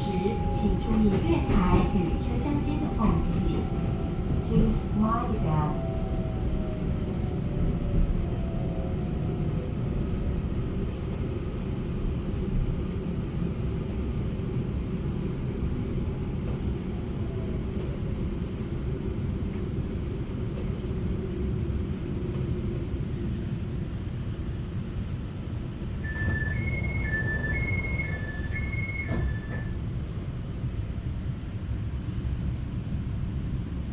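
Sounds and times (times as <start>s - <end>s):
train wheels rumbling: 0.0s - 11.2s, 26.0s - 29.8s
two-tone chime: 26.1s - 29.7s.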